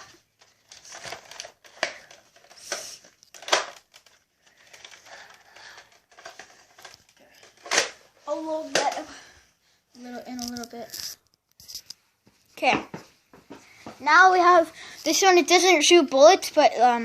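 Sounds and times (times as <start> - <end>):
toy gun plastic clicks and rattles: 0.6 - 8.0, 10.3 - 11.9.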